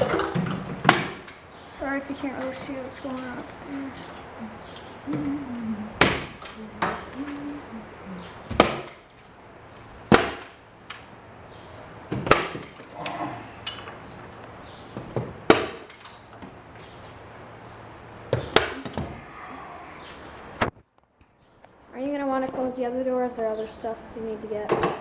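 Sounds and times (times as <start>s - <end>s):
hammer knocks: 0.0s - 1.5s, 2.2s - 9.2s, 10.1s - 11.1s.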